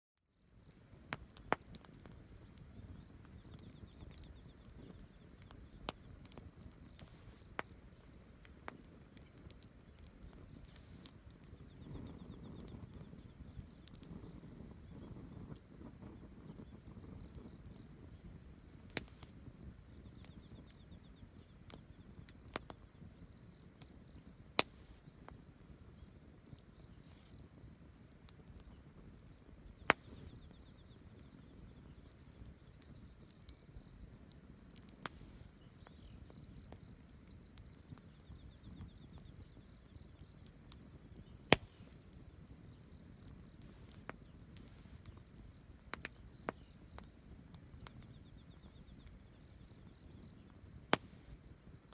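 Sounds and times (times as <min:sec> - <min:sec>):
campfire hissing: 0:00.4 - 0:51.9
wood crackling and popping: 0:00.4 - 0:51.9.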